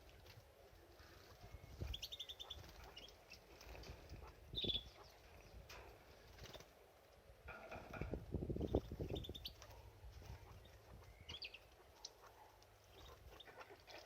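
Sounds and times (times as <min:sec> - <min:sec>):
canary chirping: 0:01.0 - 0:05.7, 0:08.6 - 0:14.0.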